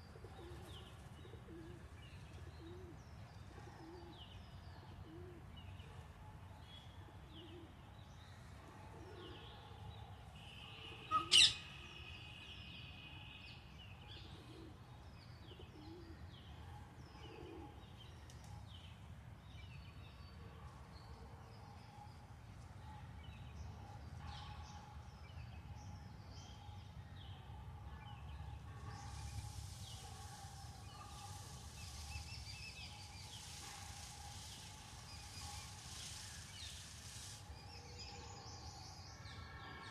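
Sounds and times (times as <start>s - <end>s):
low cooing bird: 0.2s - 1.9s, 2.5s - 3.0s, 5.0s - 5.5s, 14.2s - 14.8s, 15.6s - 16.2s, 17.2s - 17.8s
loud sharp bird call: 10.4s - 12.4s
small birds chirping: 28.1s - 38.9s.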